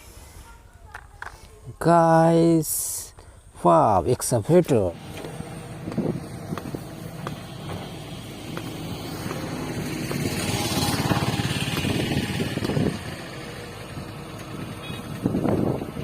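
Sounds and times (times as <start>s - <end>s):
motor vehicle passing: 4.9s - 16.0s.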